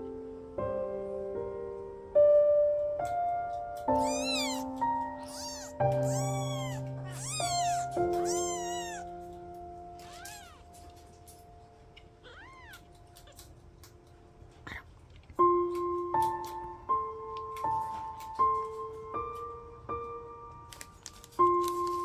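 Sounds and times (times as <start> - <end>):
soft piano music: 0.0 - 14.6, 15.4 - 22.0
kittens mewing: 3.9 - 9.2, 9.9 - 11.0, 12.0 - 13.6.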